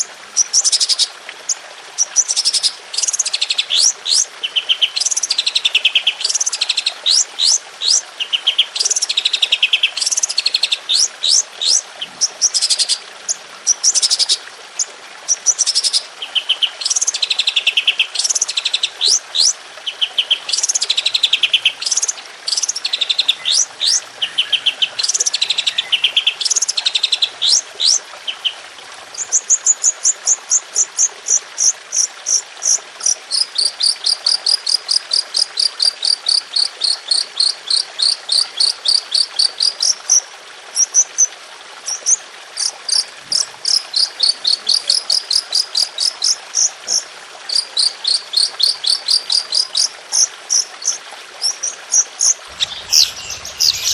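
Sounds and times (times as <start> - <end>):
songbird twittering: 15.5 - 28.6, 50.8 - 53.9
rapid repeated high bird notes: 52.5 - 53.9.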